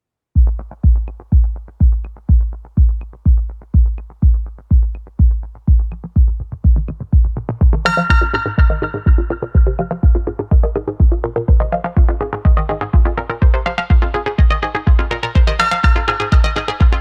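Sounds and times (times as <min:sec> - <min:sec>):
deep kick drum: 0:00.4 - 0:17.0
electronic music: 0:00.4 - 0:17.0
synth layer: 0:07.7 - 0:17.0.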